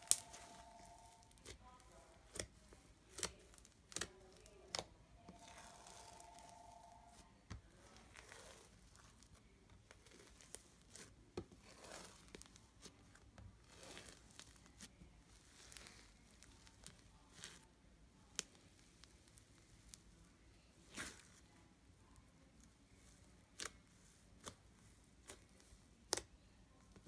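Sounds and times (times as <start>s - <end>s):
foam slime crackling and squelching: 0.0s - 20.0s, 20.8s - 21.5s.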